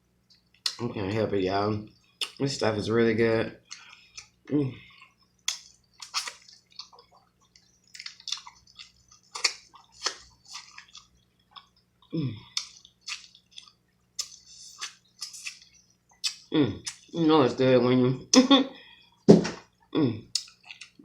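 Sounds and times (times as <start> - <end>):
wet mouth chewing: 3.6 - 17.1, 19.7 - 21.0
person humming mm: 12.1 - 12.5, 19.9 - 20.3.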